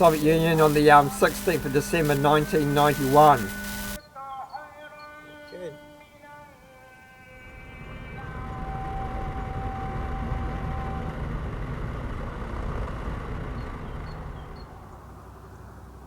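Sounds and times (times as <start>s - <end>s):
steady high tone: 0.0s - 4.0s
road vehicle passing: 7.7s - 16.0s.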